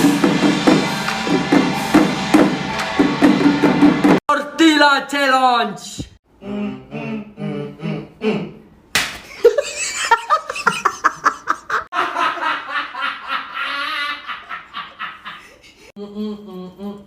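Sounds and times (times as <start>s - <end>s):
people laughing hard: 9.4s - 15.9s.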